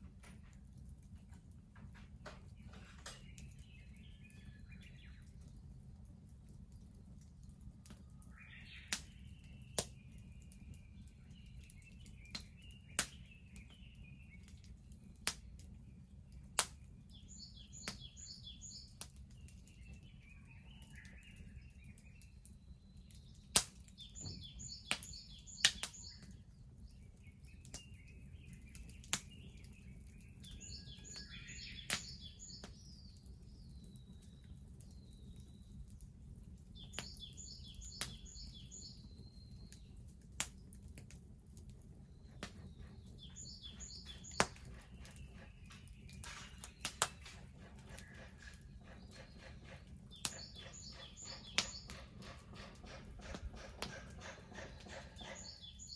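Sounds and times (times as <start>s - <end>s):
sharp pops from fire: 0.0s - 5.6s, 7.1s - 21.4s, 22.0s - 55.9s
wood bonfire crackling: 0.0s - 55.9s
birds singing: 0.2s - 55.9s
rapid bird chirping: 27.0s - 35.8s, 36.8s - 39.9s, 42.1s - 55.9s.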